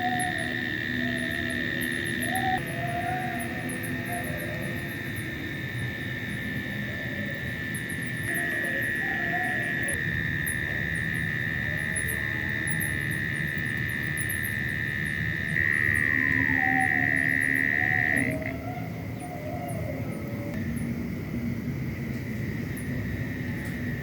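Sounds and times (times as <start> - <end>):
rapid high ticking: 0.0 - 18.4
insect high-pitched trill: 0.0 - 21.1, 22.3 - 24.0
faint wavering insect calls: 0.0 - 24.0.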